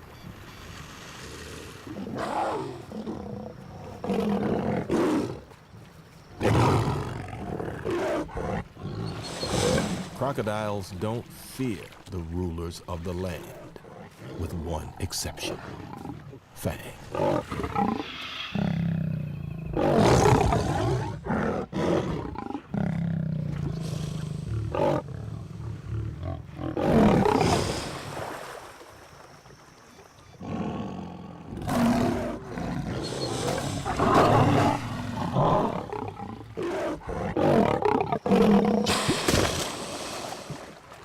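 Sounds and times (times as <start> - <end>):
lion roaring: 17.1 - 27.7, 30.4 - 38.9.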